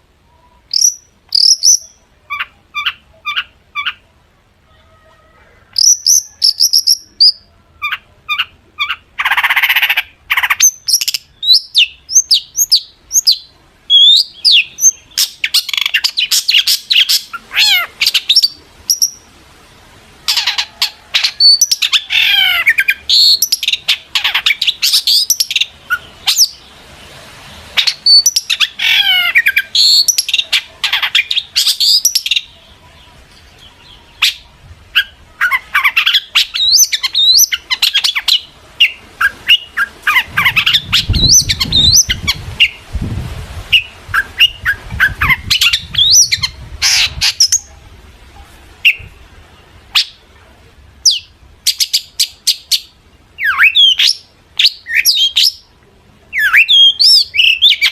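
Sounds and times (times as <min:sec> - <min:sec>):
bird chirps and trills: 0:00.3 - 0:04.0, 0:05.7 - 0:19.3, 0:20.3 - 0:26.7, 0:27.8 - 0:42.8
harsh rasping bird call: 0:04.6 - 0:19.2, 0:20.2 - 0:26.7, 0:27.8 - 0:32.5.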